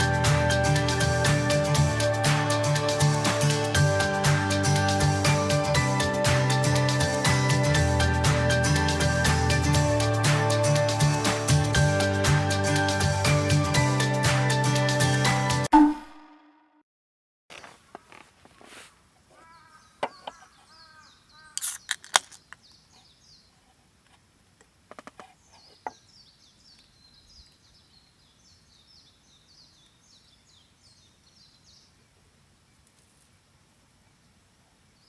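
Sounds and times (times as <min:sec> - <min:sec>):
birds chirping: 0:19.4 - 0:23.6, 0:25.4 - 0:32.0.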